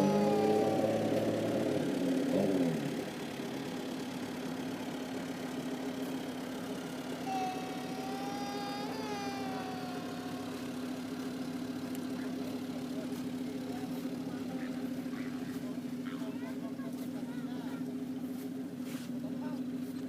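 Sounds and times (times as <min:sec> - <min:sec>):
drawn-out whining tone: 0:00.0 - 0:05.4, 0:06.3 - 0:11.7
tractor engine running: 0:00.0 - 0:20.0.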